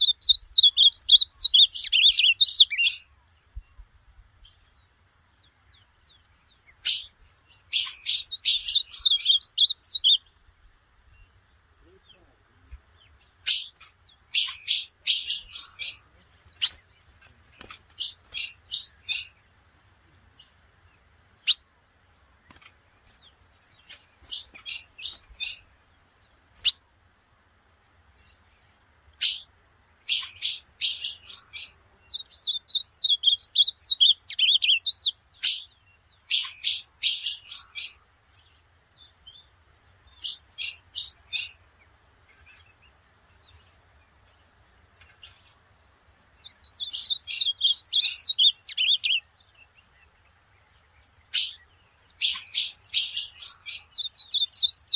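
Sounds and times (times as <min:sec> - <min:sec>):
bird singing sharp high notes: 0:00.0 - 0:03.1, 0:06.8 - 0:10.3, 0:13.4 - 0:16.8, 0:30.1 - 0:38.0, 0:46.6 - 0:49.2, 0:51.3 - 0:54.9
soft low bird twittering: 0:00.0 - 0:54.9.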